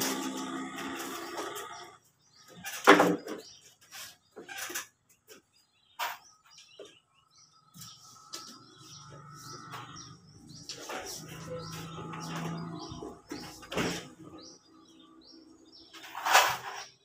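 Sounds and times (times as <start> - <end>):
small birds chirping: 0.0 - 17.0
building work knocks and clatter: 2.5 - 7.1, 7.7 - 14.5.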